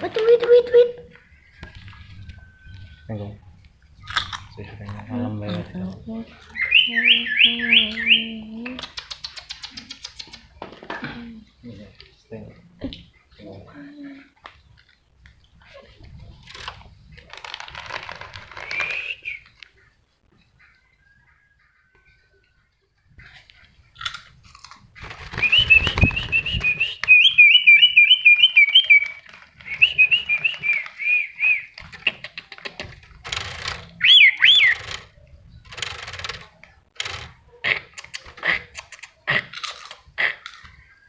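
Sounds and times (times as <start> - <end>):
sharp clicks and rustles: 14.4 - 19.8, 28.7 - 31.0, 31.7 - 40.8
warbling bird-like whistles: 25.4 - 31.8, 34.0 - 34.8.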